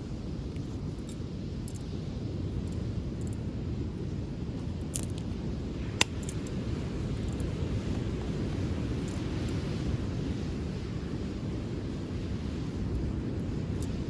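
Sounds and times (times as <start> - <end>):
steady low rumble: 0.0 - 14.0
sharp snap of fire: 6.0 - 6.4.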